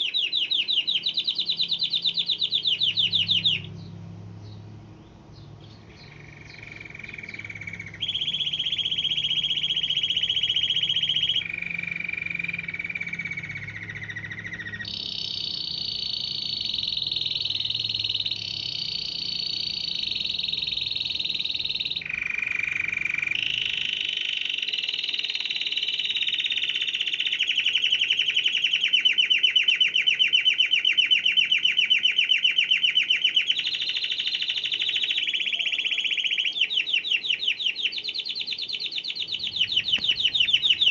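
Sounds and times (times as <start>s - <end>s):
canary singing: 0.0s - 40.9s
low hum: 39.4s - 40.9s.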